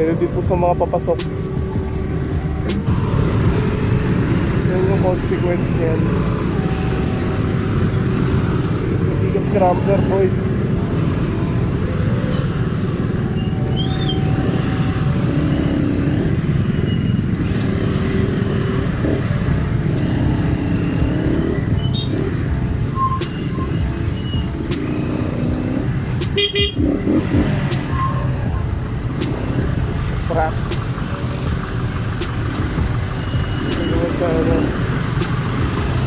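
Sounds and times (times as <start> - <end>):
traffic engines running: 0.0 - 36.0
vehicle horn: 26.4 - 26.9.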